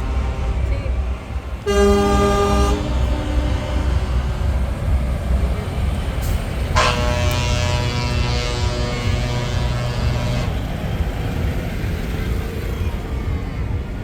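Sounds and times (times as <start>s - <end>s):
truck horn long blast: 0.0s - 10.8s
diesel truck engines rumbling past: 0.0s - 14.0s.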